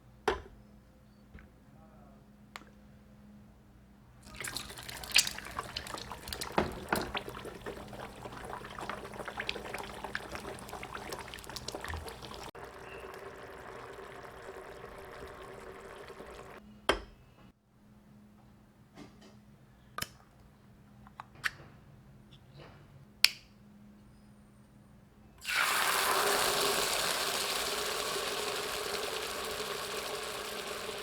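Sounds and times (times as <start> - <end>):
running water splashing: 4.2 - 16.6, 25.4 - 31.0.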